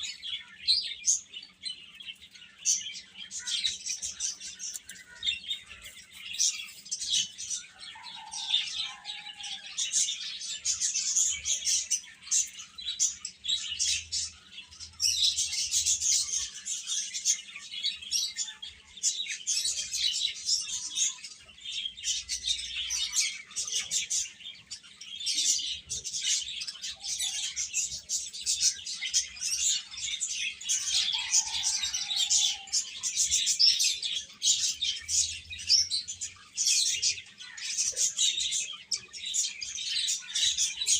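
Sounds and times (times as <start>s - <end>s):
chicks chirping: 0.0s - 40.9s.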